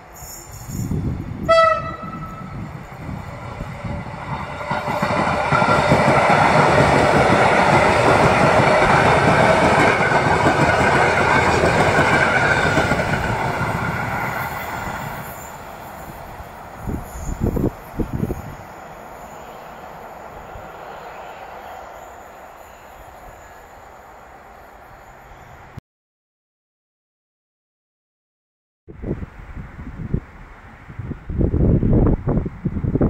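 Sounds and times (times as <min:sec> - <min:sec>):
train wheels rumbling on rails: 0:00.0 - 0:25.7
train horn blast: 0:01.4 - 0:02.6.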